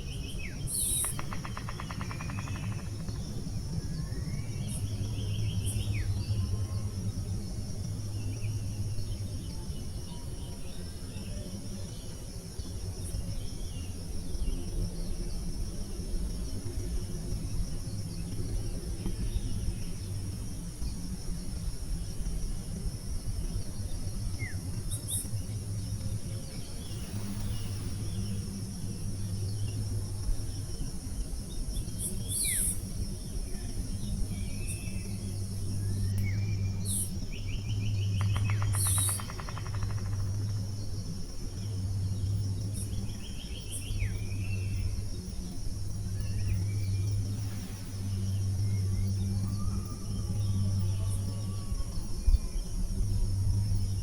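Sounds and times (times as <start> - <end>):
insects buzzing: 0.0 - 54.0
low steady hum: 0.0 - 54.0
bird rattling trill: 0.9 - 3.2, 38.2 - 40.7.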